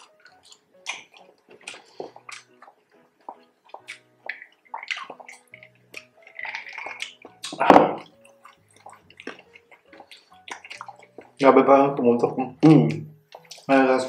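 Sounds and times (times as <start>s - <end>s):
crunchy chewing: 0.0s - 11.4s
gulping juice: 0.0s - 11.4s
wet mouth clicks: 0.0s - 11.4s, 12.8s - 13.7s.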